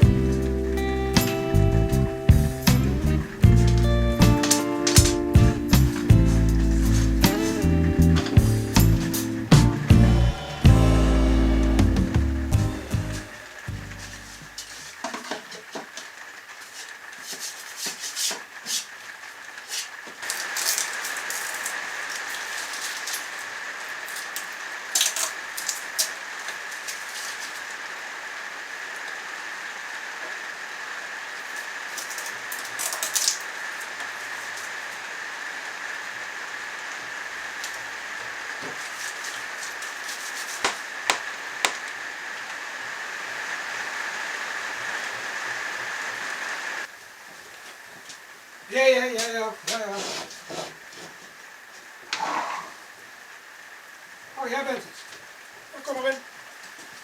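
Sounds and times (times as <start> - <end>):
heavy rain hissing: 0.0 - 57.0.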